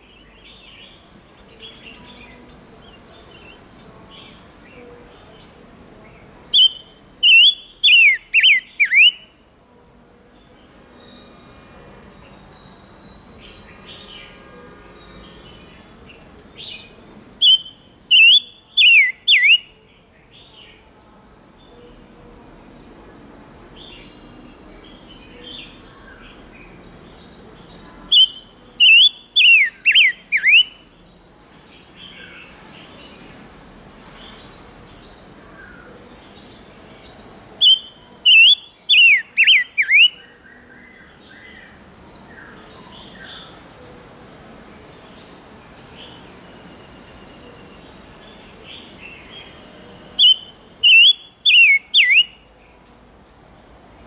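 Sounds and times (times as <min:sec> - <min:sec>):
soft chattering bird calls: 0:00.0 - 0:09.4, 0:11.0 - 0:20.9, 0:23.7 - 0:33.5, 0:34.3 - 0:43.6, 0:47.3 - 0:52.5
songbird whistled notes: 0:06.5 - 0:09.3, 0:17.4 - 0:19.7, 0:28.1 - 0:30.8, 0:37.6 - 0:40.3, 0:50.2 - 0:52.4.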